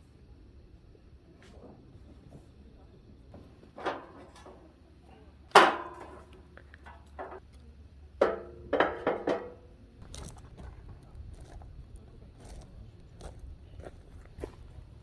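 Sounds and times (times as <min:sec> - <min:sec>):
metal objects clanking: 0:03.8 - 0:04.6, 0:08.2 - 0:09.6.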